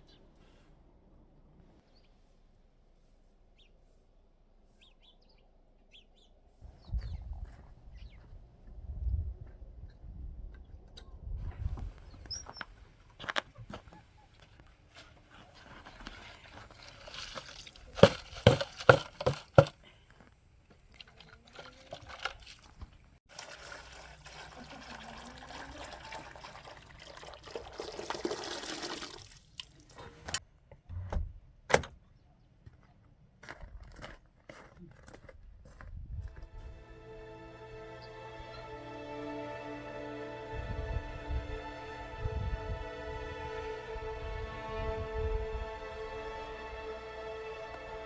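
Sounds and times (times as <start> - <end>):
liquid pouring: 16.6 - 18.9, 21.0 - 29.9.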